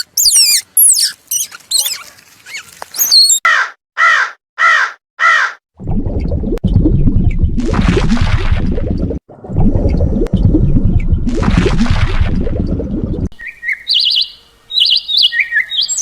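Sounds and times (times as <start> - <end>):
bird chirps and whistles: 0.0 - 2.0, 3.0 - 3.4
harsh bird calls: 0.0 - 5.5.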